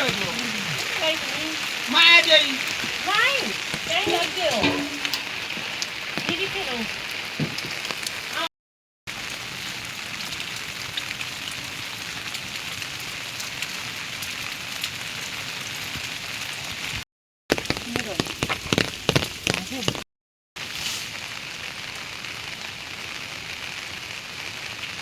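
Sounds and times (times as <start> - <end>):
heavy rain falling: 0.0 - 8.5, 9.1 - 20.0, 20.6 - 25.0
sharp water drips: 0.0 - 8.5, 9.1 - 16.8, 17.5 - 20.0.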